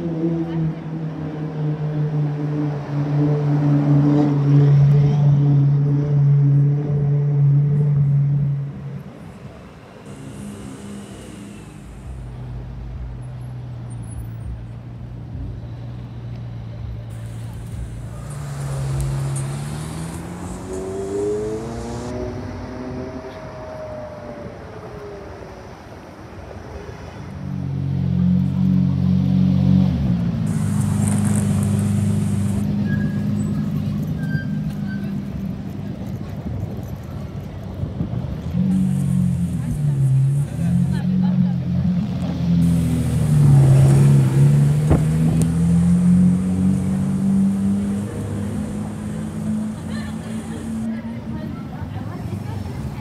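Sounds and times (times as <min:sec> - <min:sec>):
street traffic noise: 0:00.0 - 0:53.0
deep engine rumble: 0:07.4 - 0:25.0
sports car engine pulling away: 0:15.7 - 0:25.3, 0:27.5 - 0:50.9.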